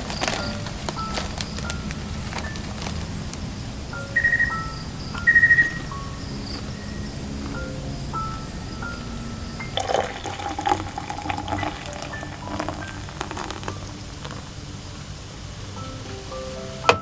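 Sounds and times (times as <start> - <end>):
liquid pouring into container: 9.7 - 14.5.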